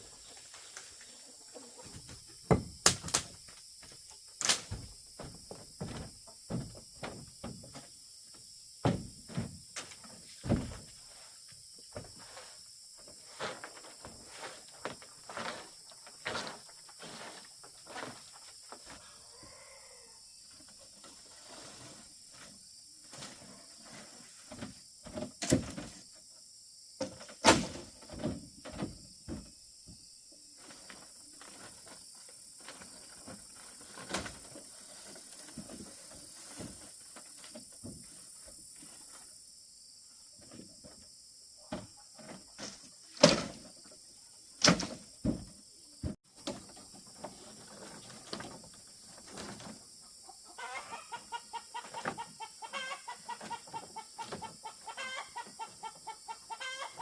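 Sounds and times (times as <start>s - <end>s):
knocks and thuds: 2.0s - 4.0s, 4.6s - 7.9s, 8.8s - 9.6s, 10.4s - 10.9s.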